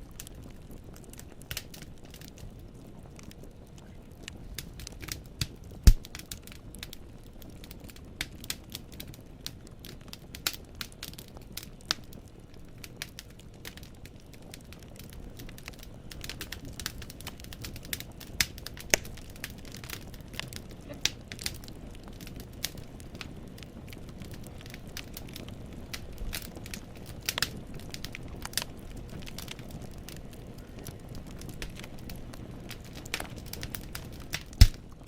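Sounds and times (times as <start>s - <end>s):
wood fire crackling: 0.0s - 35.0s
logs snapping and popping: 4.6s - 6.9s, 15.0s - 23.3s, 24.6s - 30.2s, 30.9s - 35.0s.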